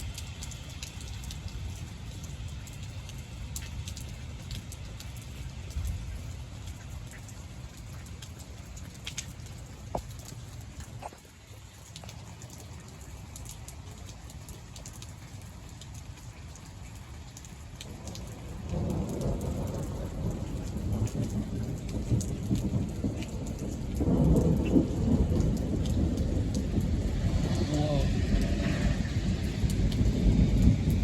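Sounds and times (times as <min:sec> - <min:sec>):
rain falling: 0:00.0 - 0:31.0
thunder rumbling: 0:17.9 - 0:31.0.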